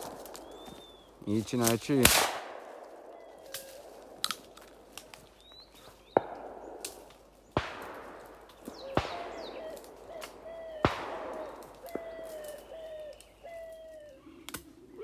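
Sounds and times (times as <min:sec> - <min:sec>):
birds calling faintly: 0:00.0 - 0:15.0
shotgun shots with echo: 0:01.6 - 0:03.2, 0:06.1 - 0:12.4.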